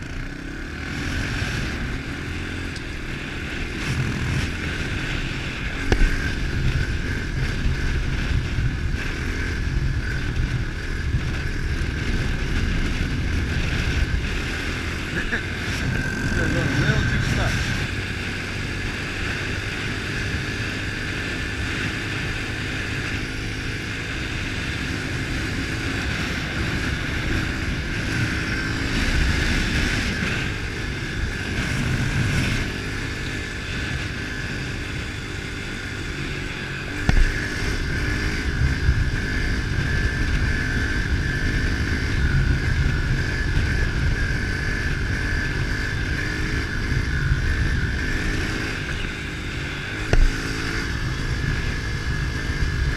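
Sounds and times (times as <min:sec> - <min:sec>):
pit bike engine running: 0:00.0 - 0:52.9
wind noise on microphone: 0:03.6 - 0:23.0, 0:23.9 - 0:52.9
sharp knock: 0:50.1 - 0:50.4.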